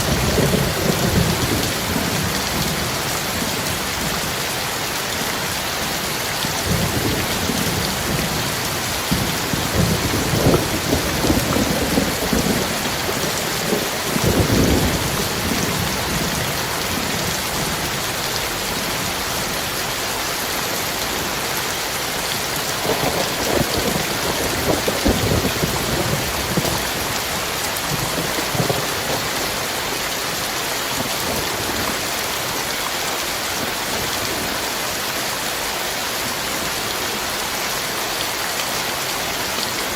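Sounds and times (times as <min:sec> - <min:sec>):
thunder rumbling: 0:00.0 - 0:04.3, 0:06.6 - 0:19.3, 0:22.6 - 0:29.9
heavy rain falling: 0:00.0 - 0:39.9.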